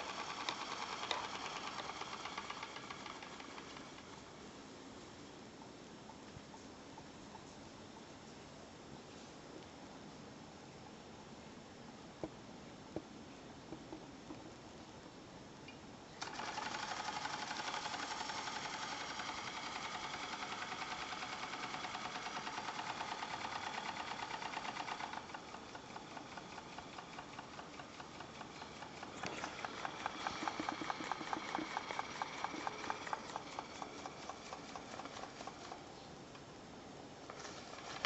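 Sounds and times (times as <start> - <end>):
steam engine ticking: 0.0 - 4.3, 16.2 - 35.8.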